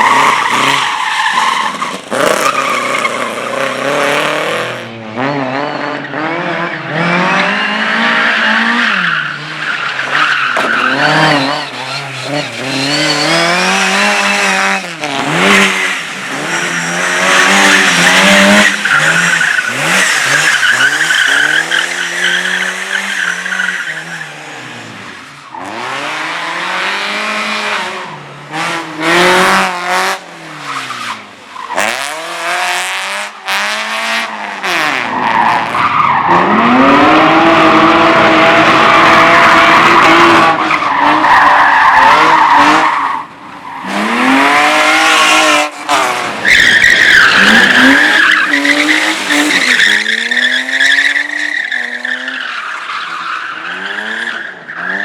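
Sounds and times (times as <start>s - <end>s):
race car engine revving: 0.0s - 55.0s
tyres squealing: 8.9s - 24.2s, 40.9s - 54.5s.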